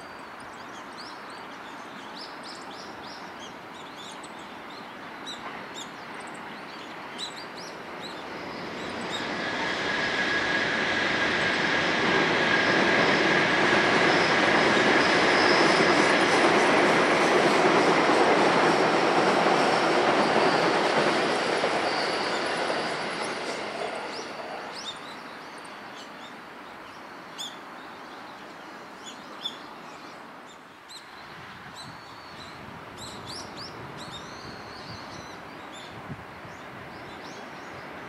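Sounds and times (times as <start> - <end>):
electric train rumbling: 5.4 - 25.6, 32.4 - 38.0
high wheel squeal: 12.6 - 16.1, 19.6 - 23.6.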